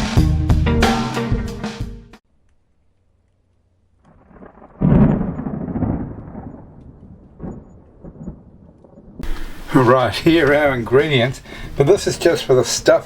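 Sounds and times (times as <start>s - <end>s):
thunder rumbling and cracking: 4.0s - 11.0s.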